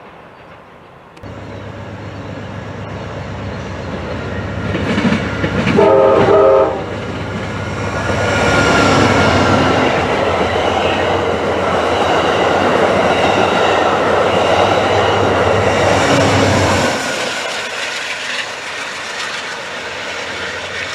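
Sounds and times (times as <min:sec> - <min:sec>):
wheels rushing on rails: 0:00.0 - 0:20.9
train horn: 0:05.7 - 0:07.0.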